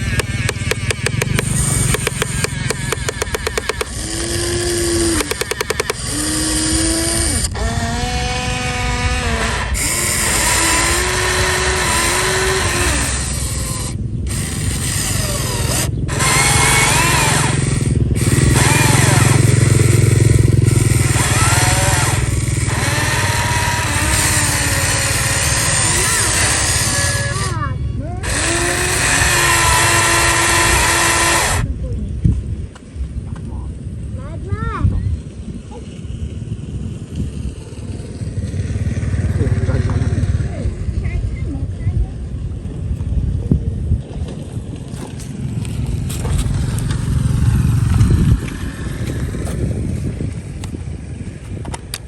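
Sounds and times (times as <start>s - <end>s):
fast even ticking: 0.0s - 6.5s
small electric motors whining: 0.0s - 31.7s, 44.4s - 52.0s.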